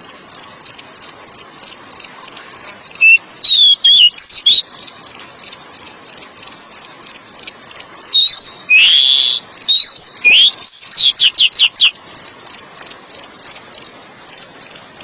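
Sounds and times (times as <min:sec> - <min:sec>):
cricket chirping: 0:00.0 - 0:15.0
bird singing whistled notes: 0:02.9 - 0:04.9, 0:08.0 - 0:12.3.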